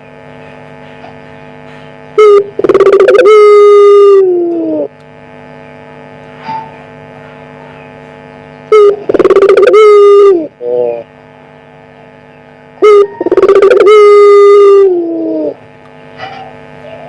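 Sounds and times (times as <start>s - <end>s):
steady electrical hum: 0.0s - 17.0s
dove cooing: 2.2s - 5.0s, 8.7s - 11.0s, 12.8s - 15.6s.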